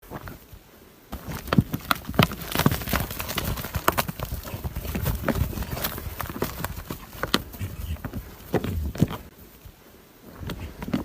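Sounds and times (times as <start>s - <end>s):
hooves knocking and scuffing: 0.0s - 11.0s.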